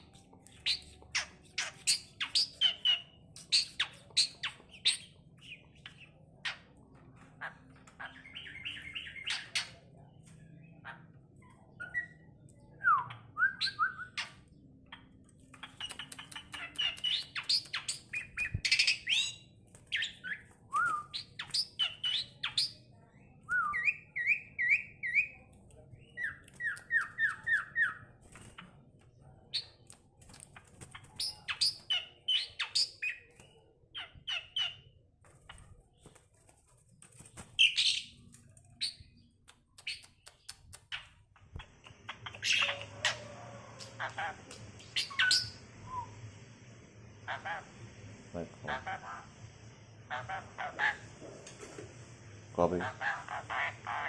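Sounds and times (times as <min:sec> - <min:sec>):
starling singing: 0:14.9 - 0:22.8, 0:41.6 - 0:46.1.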